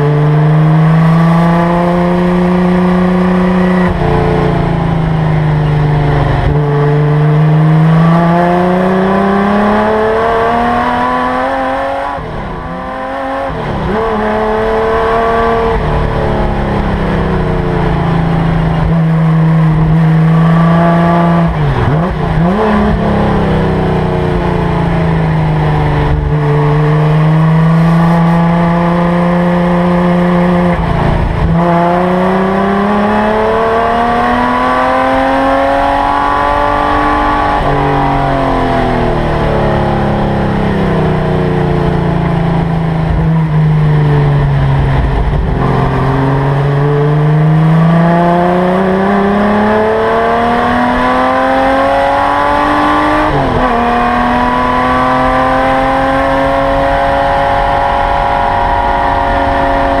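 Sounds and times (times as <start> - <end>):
race car engine revving: 0.0 - 60.0.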